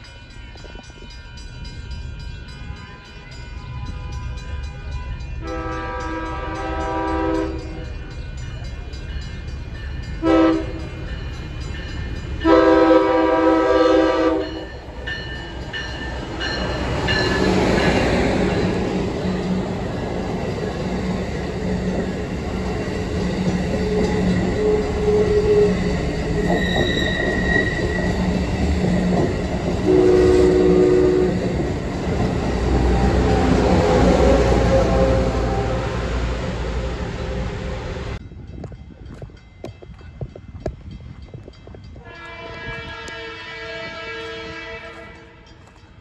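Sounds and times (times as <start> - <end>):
train passing with wheel noise: 0.0 - 46.0
train horn blasts: 2.6 - 8.0, 10.2 - 11.0, 12.4 - 14.8, 23.8 - 28.3, 29.8 - 31.7, 32.7 - 38.0, 42.0 - 45.6.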